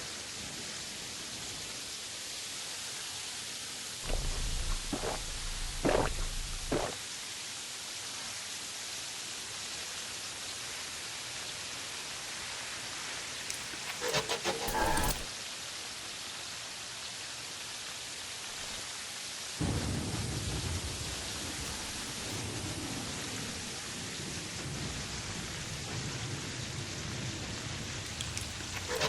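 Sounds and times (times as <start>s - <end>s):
low rumbling: 4.0s - 7.0s.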